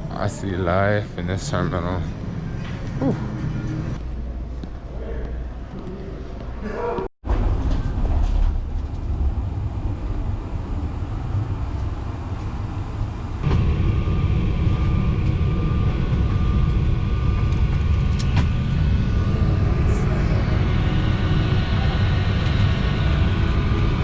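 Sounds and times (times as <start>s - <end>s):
jet engine rumble: 7.4s - 24.0s
steady whine: 7.6s - 24.0s.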